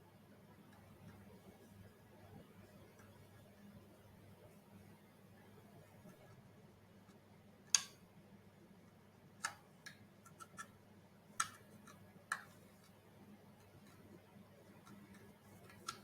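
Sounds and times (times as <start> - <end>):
faint low hum: 0.0 - 16.0
plastic parts clicking and tapping: 7.7 - 8.0, 8.9 - 13.0, 13.6 - 16.0.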